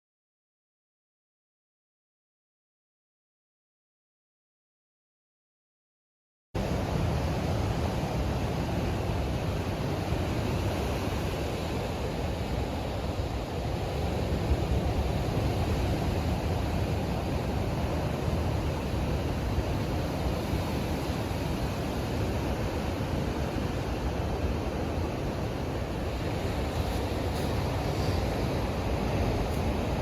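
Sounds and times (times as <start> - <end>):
ocean surf: 6.6 - 30.0
strong storm wind: 6.6 - 30.0
wind buffeting microphone: 6.7 - 30.0.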